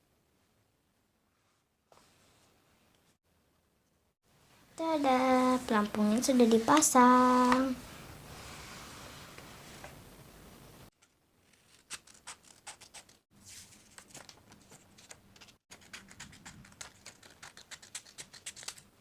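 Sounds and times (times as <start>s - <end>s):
paper and cardboard rustling: 11.5s - 17.6s.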